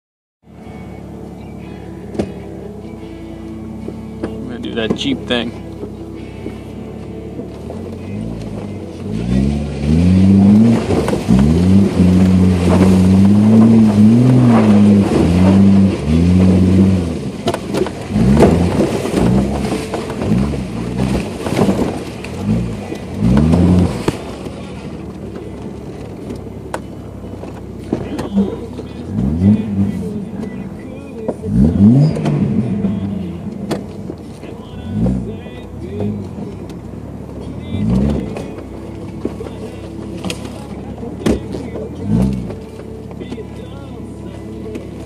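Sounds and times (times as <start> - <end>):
car engine revving: 0.6 - 45.0.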